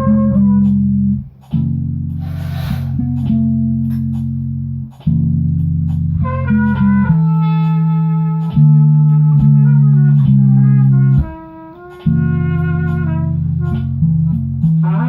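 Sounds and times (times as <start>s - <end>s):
bass guitar low notes: 0.0s - 11.4s
light percussion ticks: 3.1s - 6.9s.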